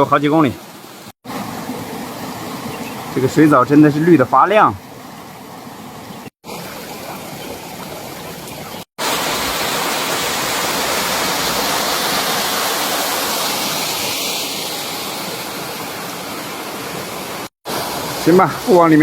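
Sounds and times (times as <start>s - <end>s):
mountain stream rushing: 0.0s - 19.0s
waterfalls pouring over rock: 5.6s - 19.0s.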